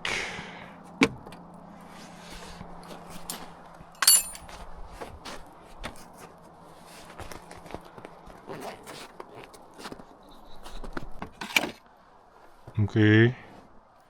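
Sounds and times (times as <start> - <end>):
metallic clink: 3.1 - 4.6.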